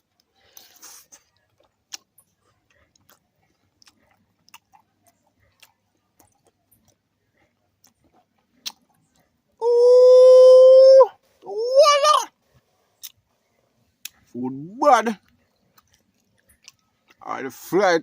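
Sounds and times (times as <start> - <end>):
man chewing food: 0.0 - 9.6, 12.4 - 14.4, 15.2 - 17.2
wet mouth clicks and smacks: 0.2 - 2.2, 7.8 - 9.3, 13.0 - 13.2
man saying ooh with pleasure: 9.6 - 12.3.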